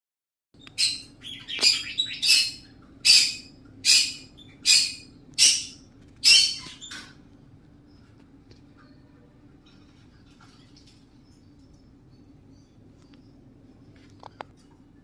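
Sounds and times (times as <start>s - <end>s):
parrot screeching: 0.8s - 6.9s.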